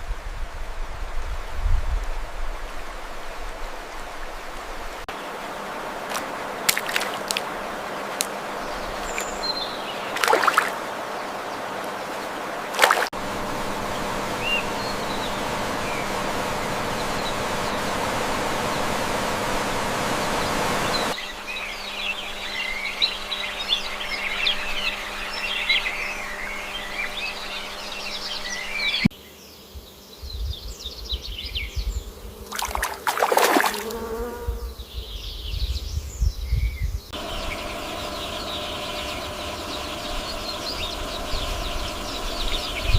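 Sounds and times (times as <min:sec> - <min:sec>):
steady hum: 0:05.1 - 0:29.1, 0:37.1 - 0:42.9
low rumbling: 0:13.2 - 0:21.2, 0:37.1 - 0:42.9.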